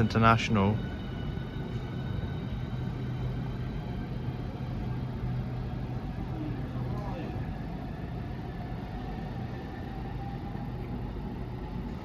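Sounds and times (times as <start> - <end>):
electric train low hum: 0.0 - 12.0.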